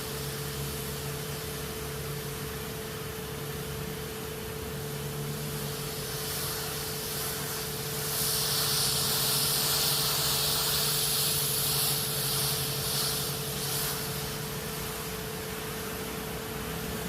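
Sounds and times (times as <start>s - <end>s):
pressure washer pump humming: 0.0s - 17.0s
nozzle spray hissing: 5.2s - 15.7s.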